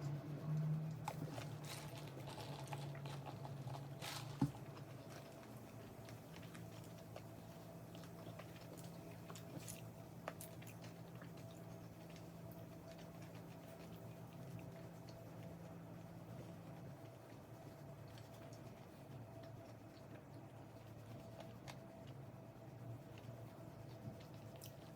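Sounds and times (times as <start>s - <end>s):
steady low hum: 0.0s - 24.9s
person chewing crunchy food: 1.0s - 14.0s.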